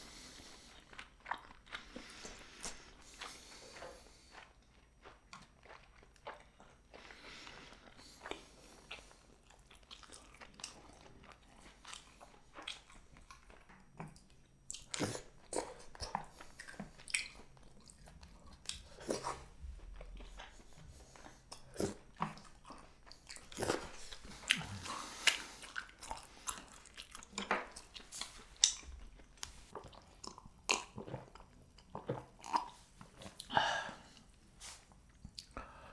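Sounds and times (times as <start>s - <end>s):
person chewing food: 0.0s - 35.9s
wet mouth clicks and smacks: 11.9s - 17.6s, 21.2s - 33.6s.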